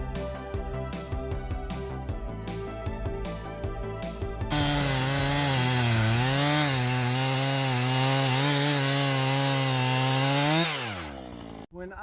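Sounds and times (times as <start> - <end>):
background music: 0.0 - 10.8
chainsaw cutting wood: 4.5 - 11.7.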